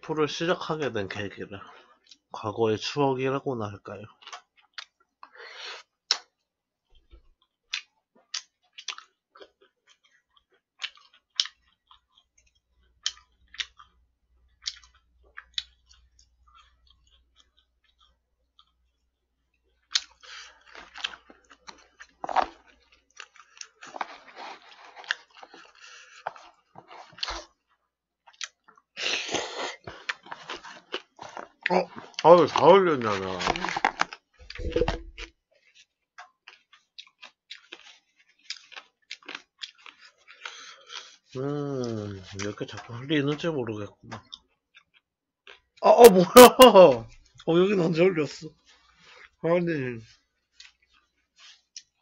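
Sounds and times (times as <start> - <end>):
chewing food: 3.7 - 49.4, 50.0 - 52.0
wet mouth clicks and smacks: 6.1 - 6.4, 7.7 - 13.8.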